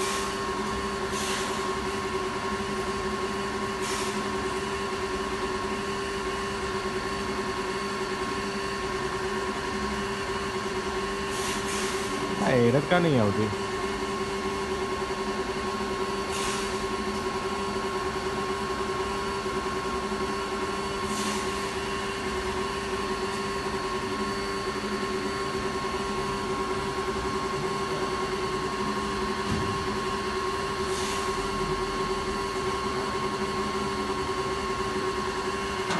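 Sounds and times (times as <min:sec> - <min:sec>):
air compressor humming: 0:00.0 - 0:35.9
short air hisses: 0:01.1 - 0:01.6, 0:11.3 - 0:12.2, 0:16.3 - 0:16.8, 0:21.1 - 0:21.5.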